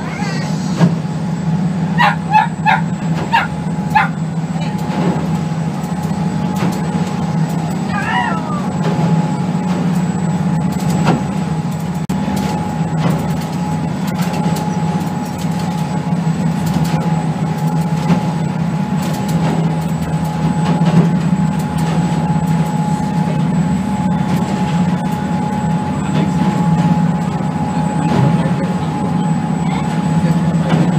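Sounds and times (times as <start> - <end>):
ship machinery droning: 0.0 - 30.9.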